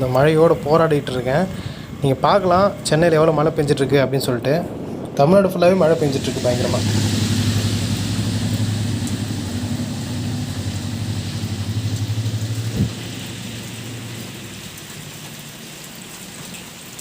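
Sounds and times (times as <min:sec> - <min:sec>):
heavy rain hissing: 0:00.0 - 0:17.0
vehicle engine running: 0:06.3 - 0:15.1.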